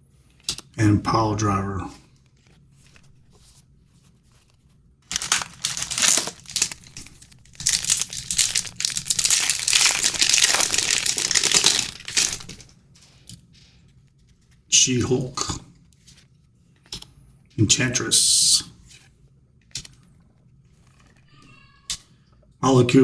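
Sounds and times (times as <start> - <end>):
wrapper crinkling: 5.1 - 12.7.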